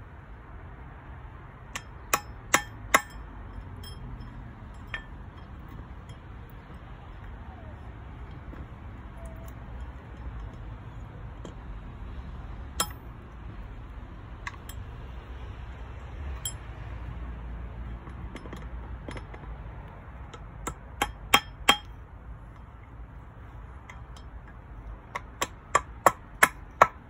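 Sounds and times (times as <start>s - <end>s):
hammer striking metal: 1.7s - 6.3s, 12.8s - 13.1s, 20.6s - 21.9s.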